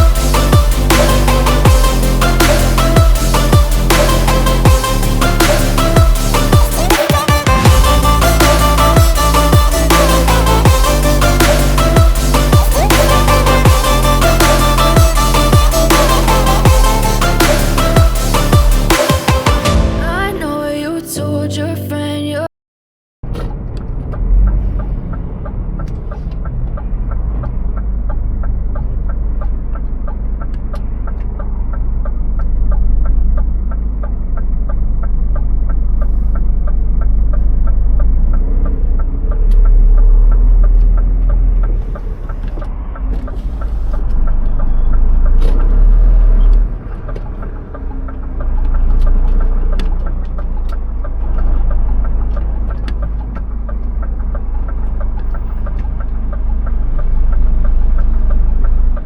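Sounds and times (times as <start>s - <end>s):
fast even ticking: 0.0s - 19.7s
truck engine rumbling: 0.0s - 20.9s, 23.2s - 59.0s.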